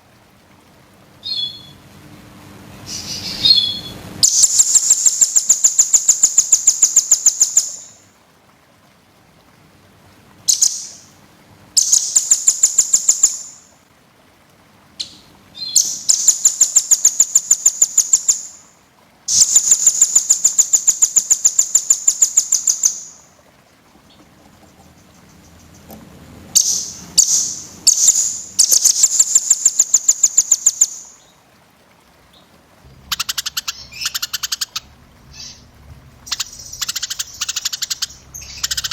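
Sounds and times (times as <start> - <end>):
songbird singing high trills: 1.2 - 1.8, 2.9 - 8.0, 32.4 - 38.9.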